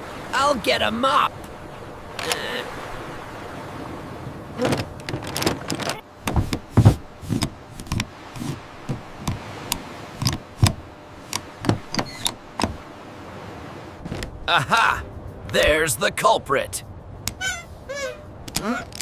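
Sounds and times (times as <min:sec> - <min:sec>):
heavy low thuds: 0:06.2 - 0:07.6.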